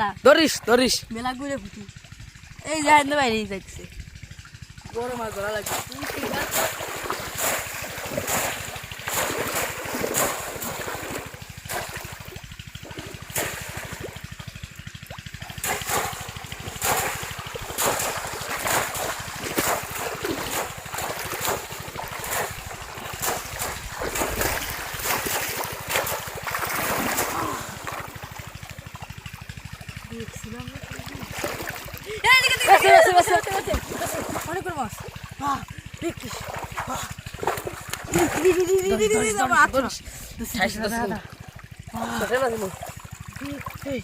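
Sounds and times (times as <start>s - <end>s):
water splashing: 0.4s - 44.0s
rushing water: 4.8s - 35.7s.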